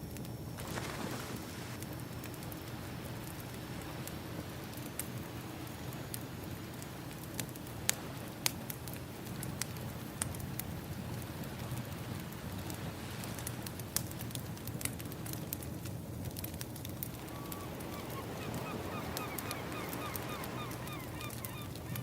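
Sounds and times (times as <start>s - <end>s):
wood fire crackling: 0.2s - 22.0s
ocean waves: 0.6s - 10.1s, 16.8s - 22.0s.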